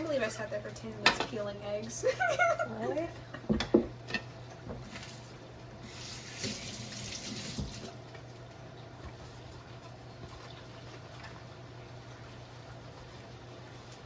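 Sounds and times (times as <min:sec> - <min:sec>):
tap water running: 0:04.6 - 0:14.0.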